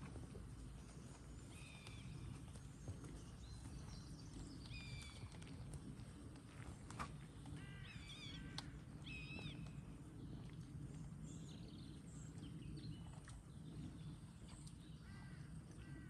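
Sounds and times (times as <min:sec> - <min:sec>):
low steady rumble: 0:00.0 - 0:16.0
bird calls: 0:07.5 - 0:09.7.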